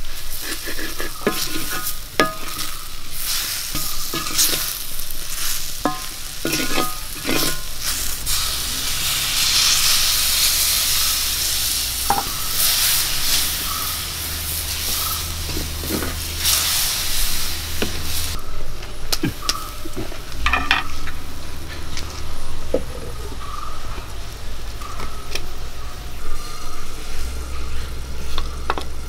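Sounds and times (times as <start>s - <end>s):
spatula scraping and stirring: 0.0s - 18.4s
water hissing in a hot pan: 0.0s - 18.4s
masala sizzling in a pan: 0.0s - 18.5s.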